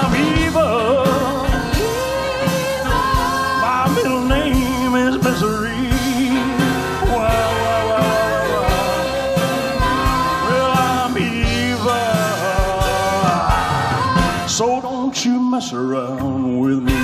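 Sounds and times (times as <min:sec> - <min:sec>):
voices singing long notes: 0:00.0 - 0:15.3
rock band playing: 0:00.0 - 0:17.0.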